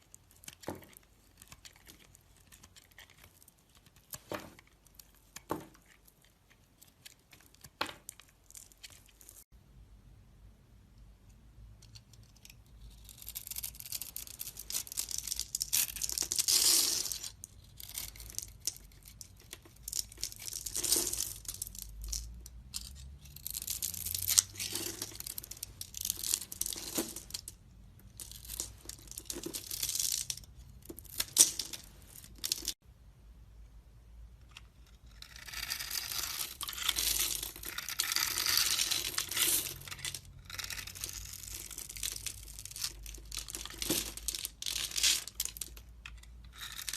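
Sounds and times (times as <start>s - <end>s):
knife scraping and cutting soap: 0.0s - 9.2s, 34.5s - 46.9s.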